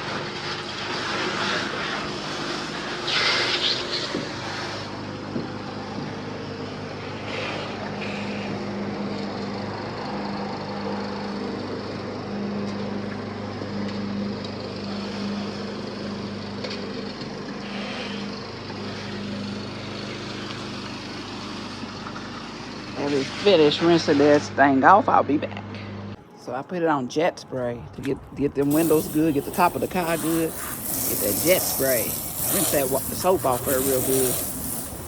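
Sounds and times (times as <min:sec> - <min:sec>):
hose spraying water on car: 0:00.0 - 0:09.4, 0:14.8 - 0:24.5, 0:28.6 - 0:35.0
motor humming: 0:00.0 - 0:35.0.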